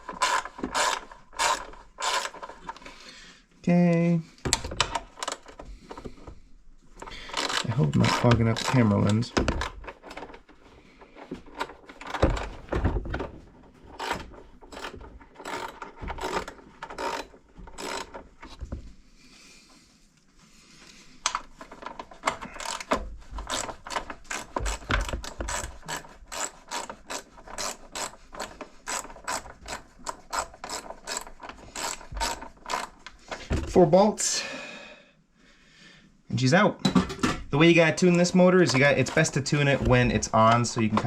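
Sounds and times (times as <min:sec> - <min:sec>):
ratchet wrench clicking: 0:00.2 - 0:02.4, 0:14.0 - 0:18.2, 0:22.6 - 0:33.0.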